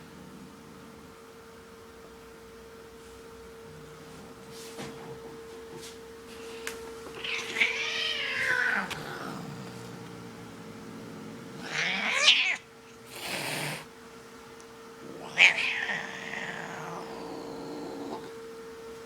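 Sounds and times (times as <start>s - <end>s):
cat yowling: 7.1s - 9.8s, 11.6s - 13.8s, 15.1s - 18.3s.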